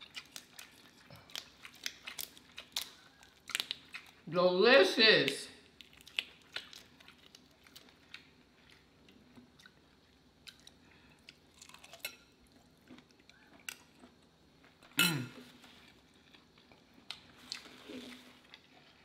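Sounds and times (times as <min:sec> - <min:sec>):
chewing and biting: 0:00.0 - 0:04.2, 0:05.7 - 0:14.8.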